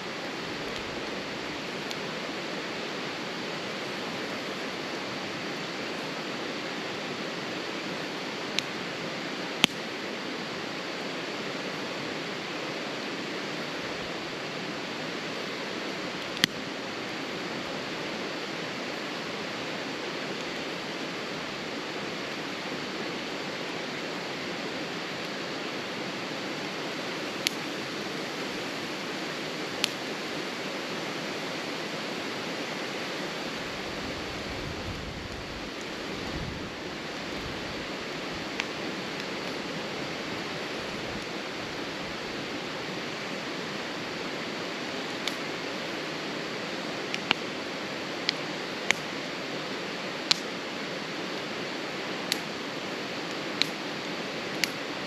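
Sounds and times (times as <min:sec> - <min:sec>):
campfire hissing: 0:00.0 - 0:55.0
fire crackling pops: 0:00.3 - 0:06.2, 0:07.1 - 0:10.5, 0:15.2 - 0:19.3, 0:20.1 - 0:21.0, 0:23.2 - 0:30.6, 0:32.7 - 0:55.0.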